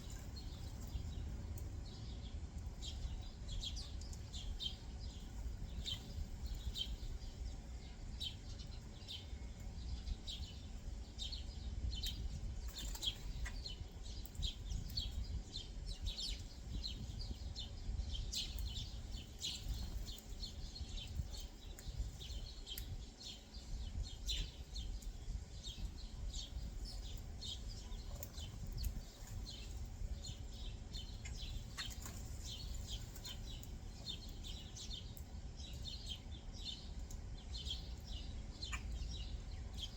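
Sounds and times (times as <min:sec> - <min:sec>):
low steady rumble: 0:00.0 - 0:39.9
small birds chirping: 0:00.0 - 0:39.9.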